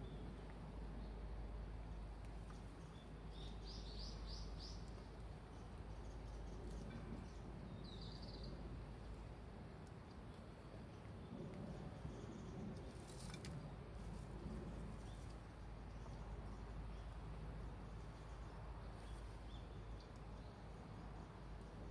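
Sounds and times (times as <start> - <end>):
low outdoor background noise: 0.0 - 21.9
small bird chirping: 2.5 - 8.6.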